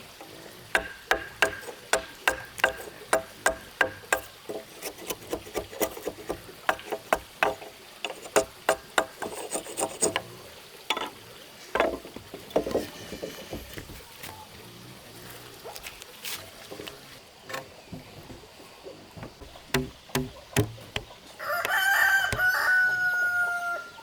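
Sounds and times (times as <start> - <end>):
hand tool working wood: 0.2 - 10.3, 11.8 - 14.1, 17.5 - 22.6.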